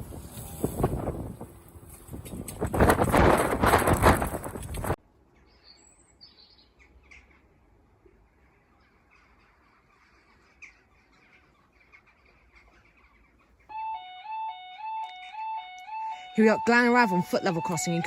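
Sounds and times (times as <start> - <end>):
faint bird chirps: 5.3 - 14.0
two-tone electronic warning alarm: 13.7 - 18.0.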